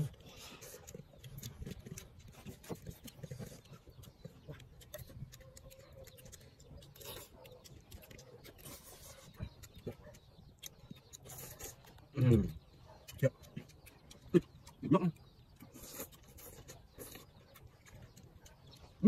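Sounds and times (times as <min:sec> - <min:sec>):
chewing and lip-smacking: 0:00.0 - 0:19.0.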